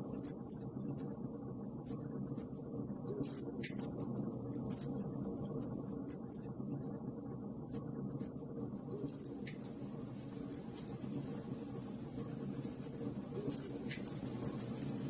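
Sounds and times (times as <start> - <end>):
wood fire crackling and popping: 7.6 - 15.0.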